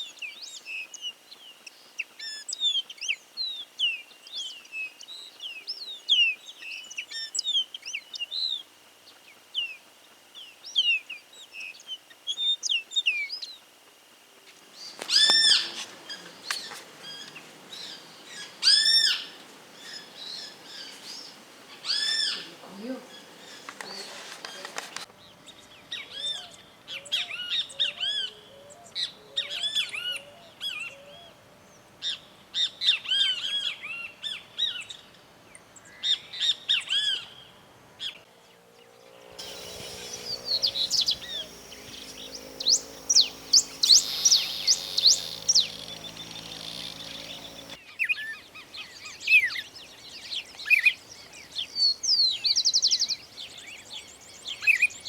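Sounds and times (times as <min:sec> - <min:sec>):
songbirds chirping and singing: 0:39.1 - 0:47.8
low steady hum: 0:39.3 - 0:47.8
rapid rising whistles: 0:39.4 - 0:47.8.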